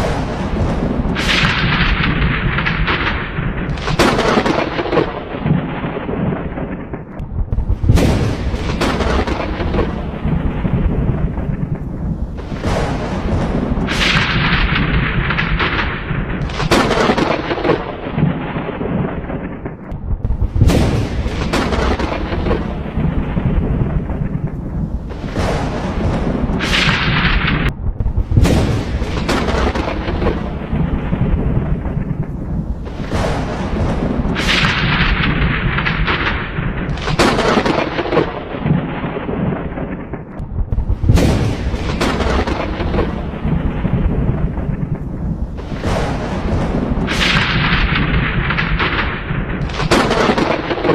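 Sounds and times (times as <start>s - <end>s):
thunder claps: 0.0s - 50.9s
low rumble: 19.9s - 35.9s, 40.4s - 49.6s.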